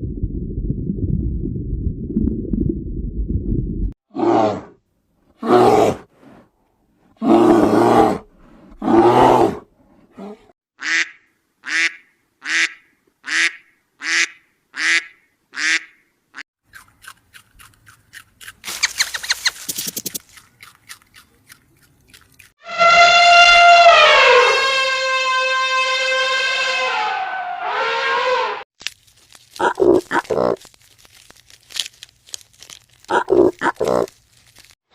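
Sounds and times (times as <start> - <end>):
buzzy rattle: 18.7 - 20.3.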